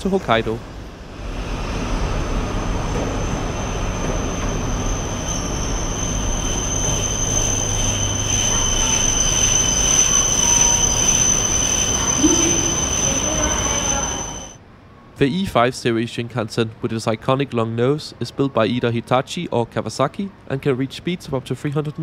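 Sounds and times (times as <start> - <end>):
train rumble: 0.0 - 14.6
high wheel squeal: 1.1 - 14.6.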